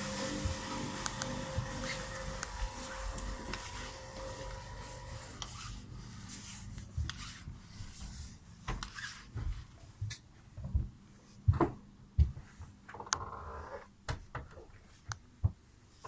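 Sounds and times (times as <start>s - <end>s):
rubbing noises: 1.6s - 9.8s.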